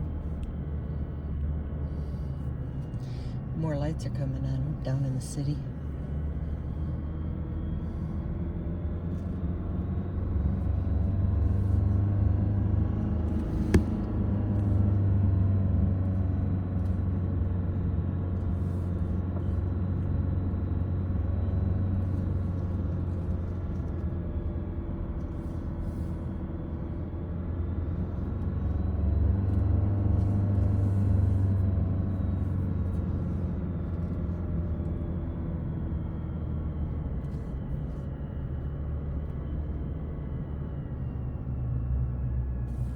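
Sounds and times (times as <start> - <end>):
car engine and road rumble: 0.0 - 42.9.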